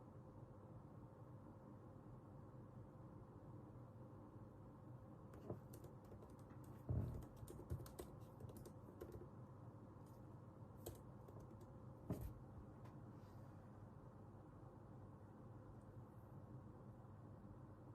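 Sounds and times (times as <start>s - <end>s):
keyboard typing clicks: 5.4s - 9.3s, 10.8s - 11.8s
heavy thumps: 6.8s - 7.5s.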